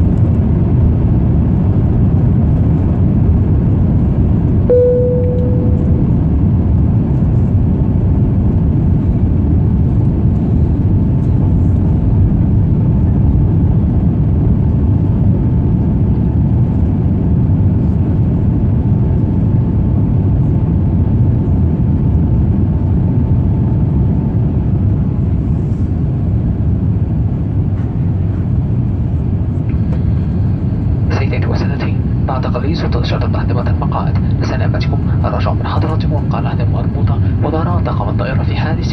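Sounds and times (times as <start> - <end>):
airplane engines roaring in cabin: 0.0 - 38.9
short cabin tone: 4.7 - 6.4.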